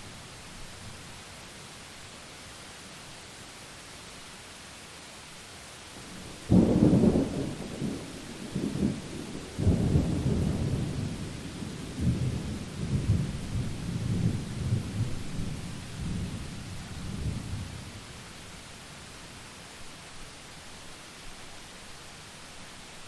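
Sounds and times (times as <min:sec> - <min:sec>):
rain hissing: 0:00.0 - 0:23.0
rolling thunder rumbles: 0:06.1 - 0:17.9.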